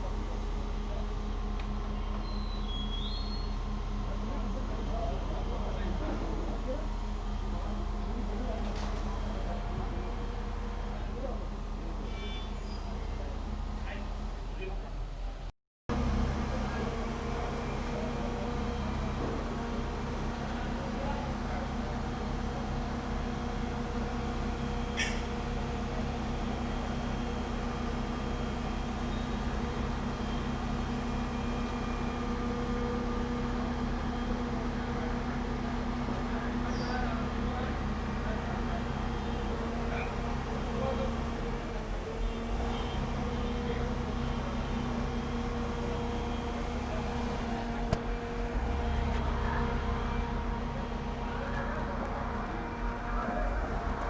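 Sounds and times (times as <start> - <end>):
low mechanical hum: 0.0 - 54.0
machine hum with low rumble: 42.3 - 54.0.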